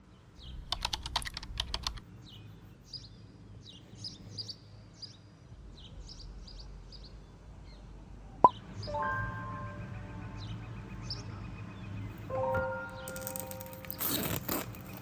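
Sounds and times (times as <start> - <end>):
sharp clicks: 0.4 - 2.0
small birds chirping: 0.4 - 9.1.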